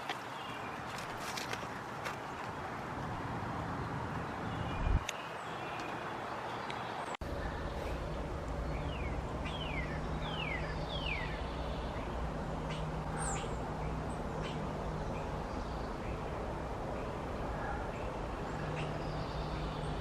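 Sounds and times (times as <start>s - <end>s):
low hum: 7.2s - 20.0s.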